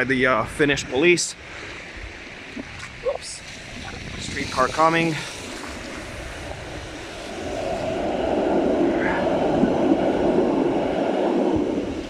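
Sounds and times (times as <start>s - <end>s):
tram rolling past: 5.1s - 12.0s.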